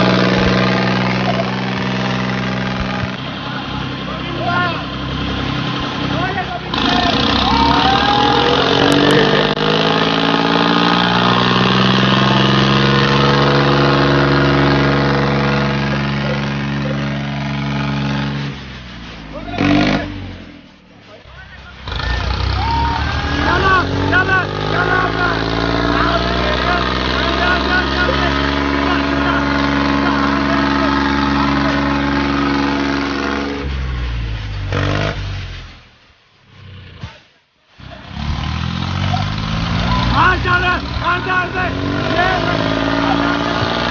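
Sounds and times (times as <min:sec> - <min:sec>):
tractor diesel engine running: 0:00.0 - 0:36.6.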